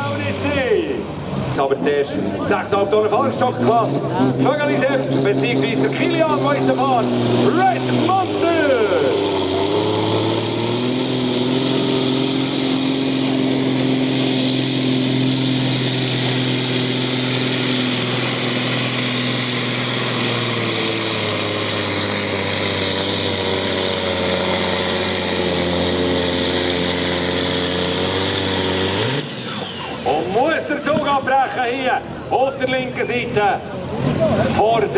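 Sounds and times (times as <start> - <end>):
tractor engine at high revs: 0.0 - 34.9.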